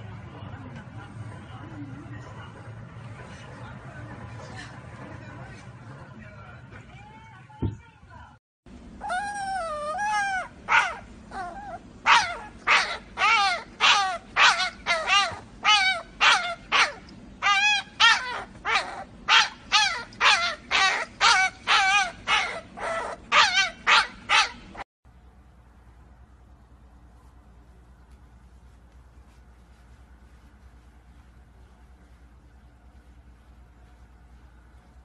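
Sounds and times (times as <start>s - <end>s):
puppy yipping: 9.0s - 24.8s.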